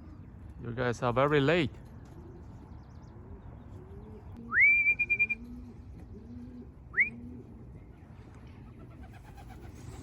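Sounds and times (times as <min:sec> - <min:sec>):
pigeons cooing softly: 0:00.0 - 0:10.0
rising whistles: 0:04.5 - 0:05.5.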